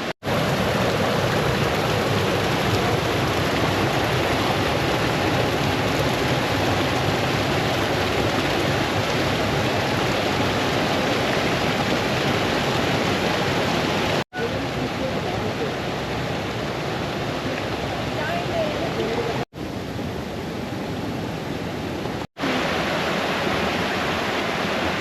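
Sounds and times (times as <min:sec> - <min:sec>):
brook running over stones: 0:00.0 - 0:19.4.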